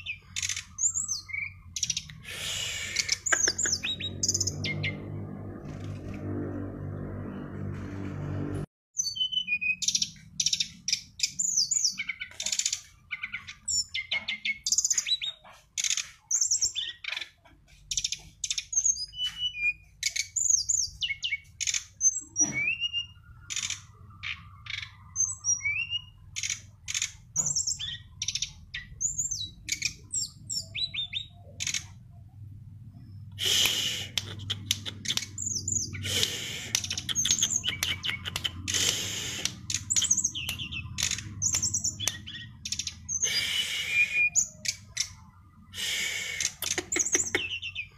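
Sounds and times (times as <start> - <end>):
bird singing whistled notes: 9.0 - 12.3, 39.2 - 45.2.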